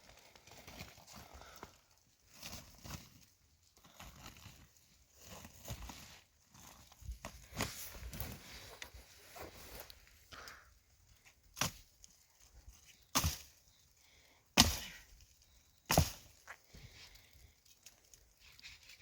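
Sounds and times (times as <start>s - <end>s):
axe chopping wood: 13.1s - 13.5s, 14.6s - 15.0s, 15.9s - 16.3s.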